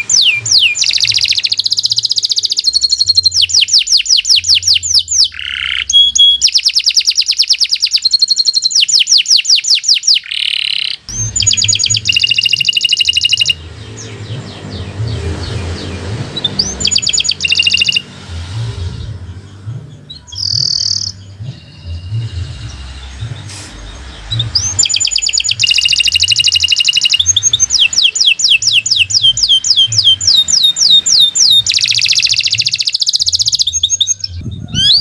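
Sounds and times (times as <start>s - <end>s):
canary singing trills: 0.0s - 35.0s
low steady hum: 11.1s - 31.7s.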